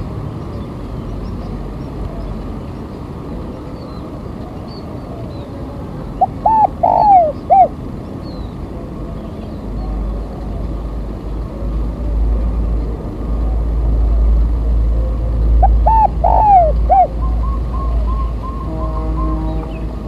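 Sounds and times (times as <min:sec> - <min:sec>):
dove cooing: 0:03.4 - 0:07.8, 0:12.8 - 0:20.0.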